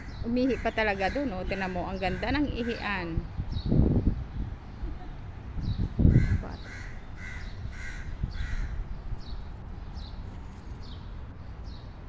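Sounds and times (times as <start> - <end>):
bird calling: 6.0 - 11.1.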